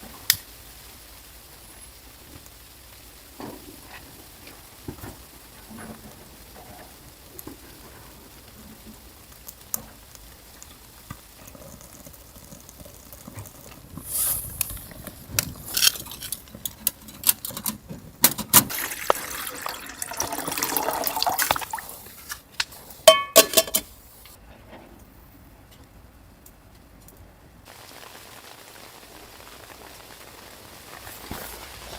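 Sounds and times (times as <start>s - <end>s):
liquid pouring: 10.4s - 16.4s, 18.7s - 22.2s
cookware clicks and clinks: 23.1s - 23.9s.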